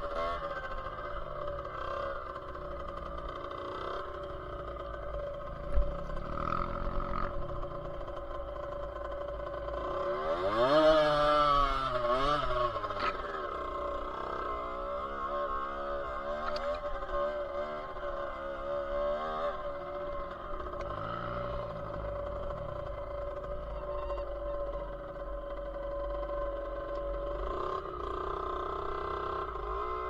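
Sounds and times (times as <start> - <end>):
dirt bike engine revving: 9.7 - 24.0.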